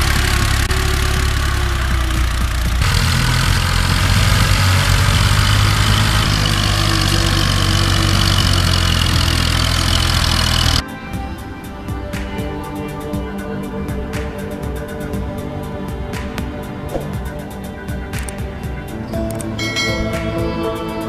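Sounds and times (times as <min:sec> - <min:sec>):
tractor diesel engine chugging: 0:00.0 - 0:10.8.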